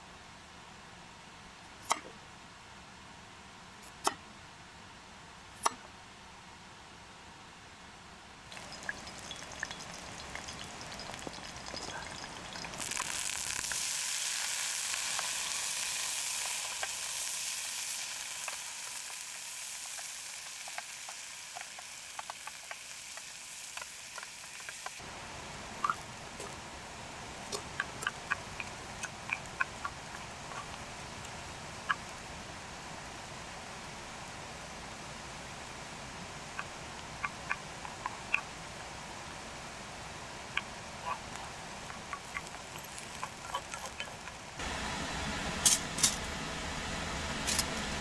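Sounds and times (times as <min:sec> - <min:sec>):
food sizzling in a pan: 0:08.5 - 0:25.1.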